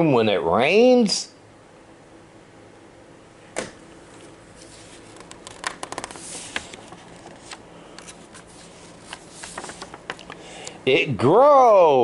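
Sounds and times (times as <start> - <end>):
paper page handling: 4.6 - 10.4.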